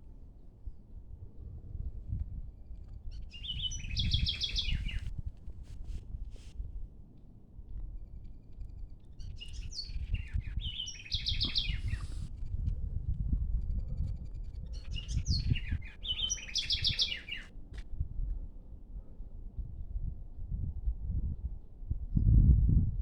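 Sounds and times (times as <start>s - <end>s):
gusty low rumble: 0.0s - 23.0s
songbird singing: 2.5s - 5.2s, 7.9s - 12.6s, 13.5s - 17.6s.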